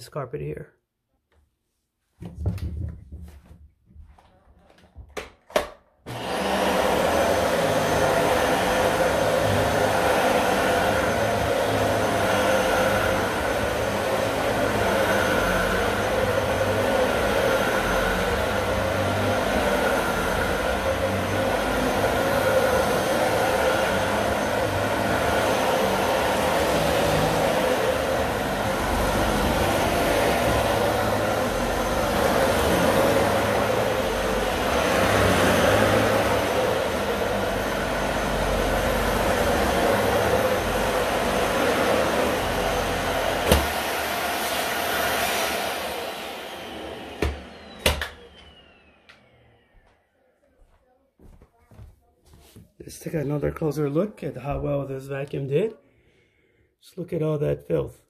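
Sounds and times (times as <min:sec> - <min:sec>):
vacuum cleaner motor running: 0:04.0 - 0:51.9
vacuum cleaner switch click: 0:47.2 - 0:49.3.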